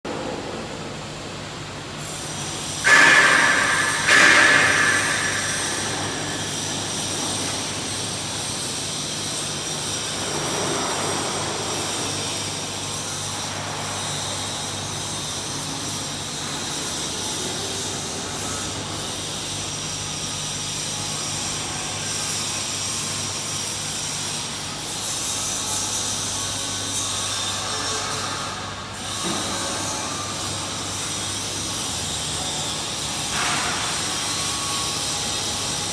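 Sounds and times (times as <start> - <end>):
machine mechanical hum: 0.1 - 35.9
loud ringing bangs: 2.8 - 7.2.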